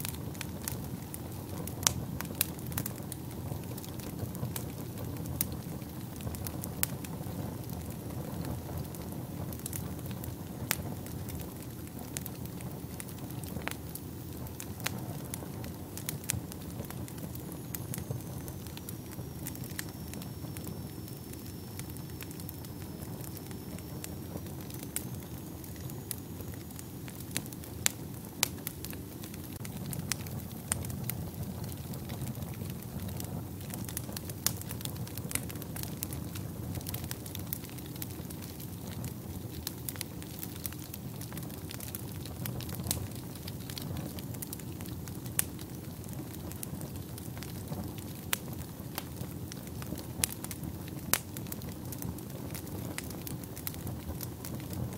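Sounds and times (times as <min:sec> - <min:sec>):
wood fire crackling and popping: 0:00.0 - 0:54.9
faint high whistle: 0:17.5 - 0:27.1.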